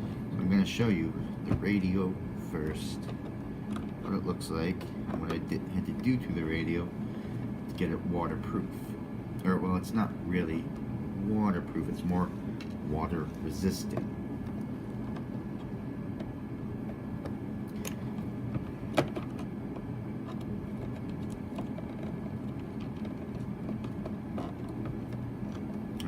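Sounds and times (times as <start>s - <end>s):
steady low hum: 0.0s - 26.0s
clicks and taps of radio transmitter: 2.6s - 6.2s.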